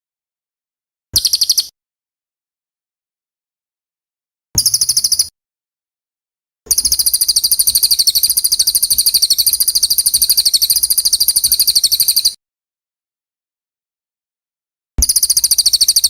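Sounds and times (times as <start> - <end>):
songbird trilling: 1.2 - 1.7, 4.6 - 5.3, 6.7 - 12.4, 15.0 - 16.0.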